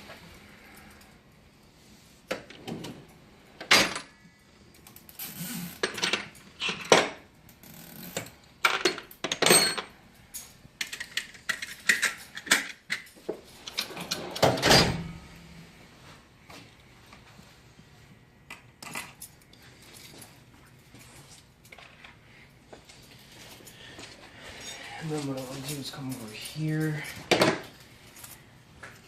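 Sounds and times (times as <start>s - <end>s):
metal tools clinking: 8.6s - 14.5s, 22.9s - 29.0s.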